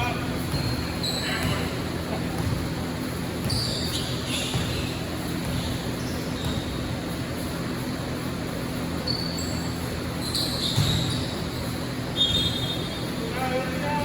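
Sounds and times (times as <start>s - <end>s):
basketball bouncing on court: 0.0s - 13.2s
crowd noise hum: 0.0s - 14.0s
short high squeaks: 0.5s - 1.7s, 9.0s - 13.1s.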